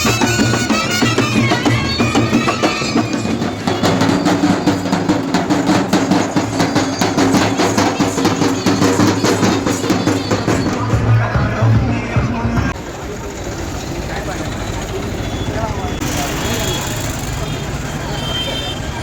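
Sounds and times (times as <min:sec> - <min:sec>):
wind instrument melody: 0:00.0 - 0:12.0
fast dense drumming: 0:00.0 - 0:12.8.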